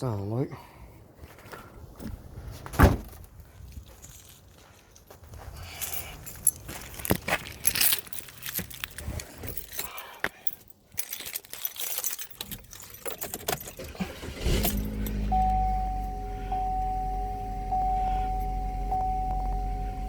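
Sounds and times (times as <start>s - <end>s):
car keys jangling: 5.7s - 19.8s
car engine starting and idling: 13.6s - 20.0s
steady tone: 14.7s - 20.0s.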